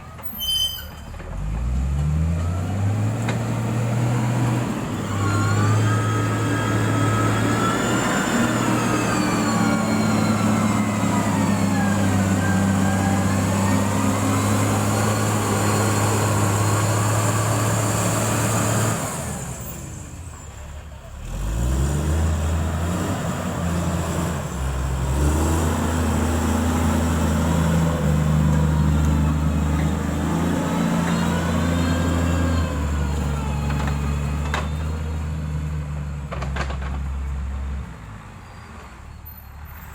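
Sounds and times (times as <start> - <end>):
diesel engine running: 1.1 - 37.7.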